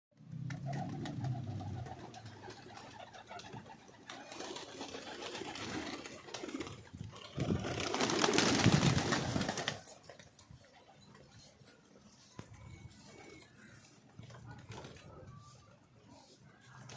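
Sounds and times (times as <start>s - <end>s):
pigeons cooing: 0.5s - 8.5s.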